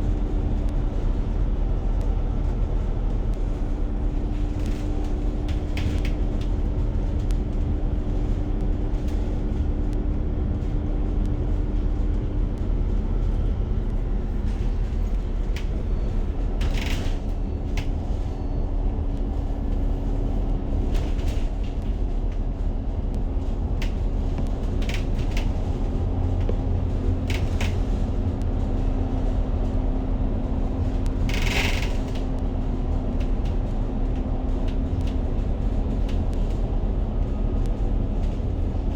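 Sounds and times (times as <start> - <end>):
bus engine and road rumble: 0.0 - 38.9
constant hum: 0.0 - 38.9.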